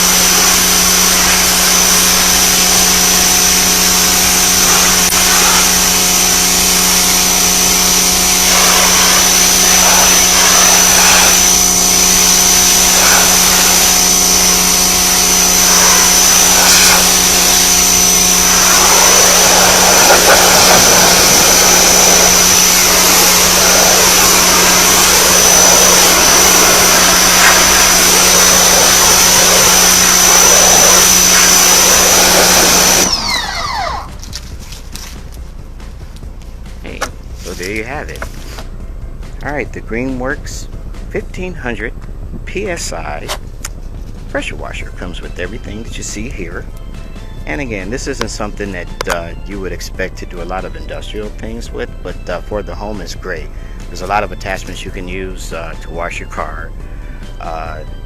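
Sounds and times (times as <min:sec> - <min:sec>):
water jet hissing: 0:00.0 - 0:34.1
electric pressure washer running: 0:00.0 - 0:39.3, 0:42.8 - 0:58.0
motor winding down: 0:00.0 - 0:41.9, 0:42.5 - 0:58.0.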